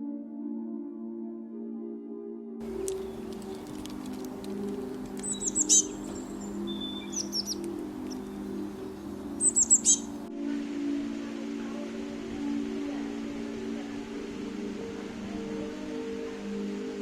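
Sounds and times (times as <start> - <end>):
ambient music drone: 0.0 - 17.0
songbird chirping: 2.6 - 17.0.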